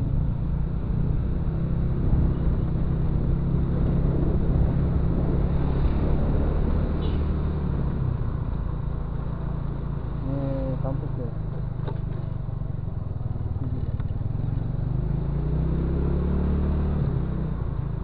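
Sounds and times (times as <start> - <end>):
road noise: 0.0 - 18.0
motorcycle engine running: 8.2 - 15.2.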